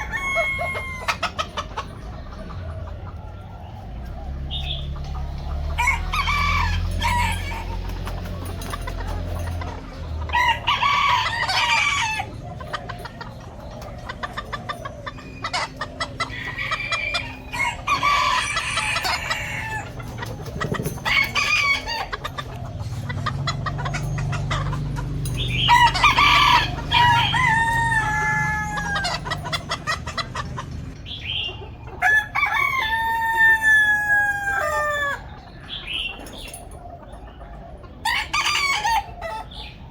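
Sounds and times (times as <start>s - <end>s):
chickens clucking: 0.0s - 39.9s
roosters crowing: 0.0s - 39.9s.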